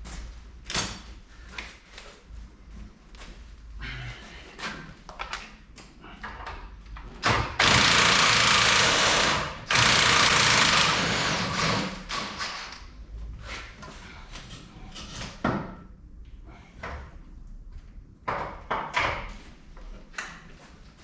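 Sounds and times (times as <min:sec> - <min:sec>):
power tool running: 0:07.6 - 0:12.7.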